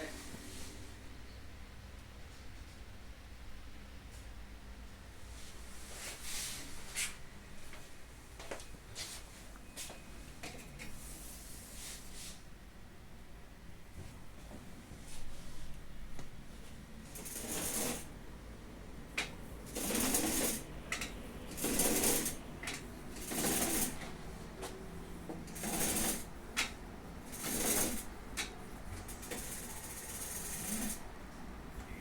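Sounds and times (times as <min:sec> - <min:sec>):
window blind cord rustling: 0:16.6 - 0:18.2, 0:19.2 - 0:31.1.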